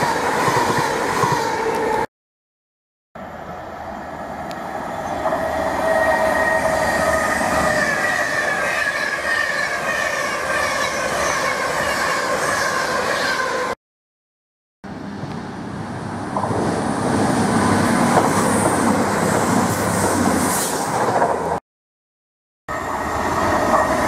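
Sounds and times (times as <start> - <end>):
electric train passing at speed: 0.0 - 2.1, 3.2 - 13.8, 14.9 - 21.6, 22.7 - 24.0.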